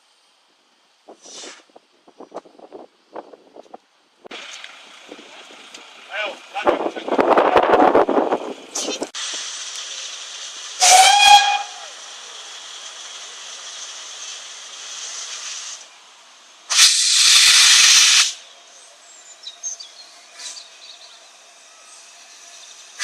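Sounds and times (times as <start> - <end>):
steam hissing: 1.1 - 1.8, 6.2 - 23.0
steam locomotive whistle: 10.8 - 12.0, 16.7 - 18.4.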